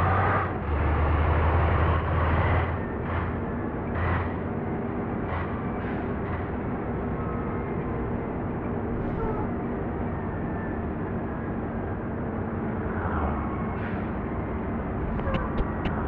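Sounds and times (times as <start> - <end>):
diesel engine running: 14.7 - 16.0.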